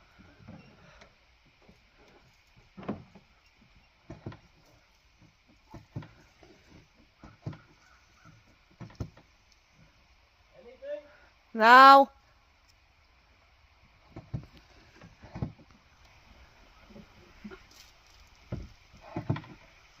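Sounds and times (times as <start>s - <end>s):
quiet knocks and thumps: 0.2s - 10.0s, 14.0s - 15.8s, 18.3s - 19.8s.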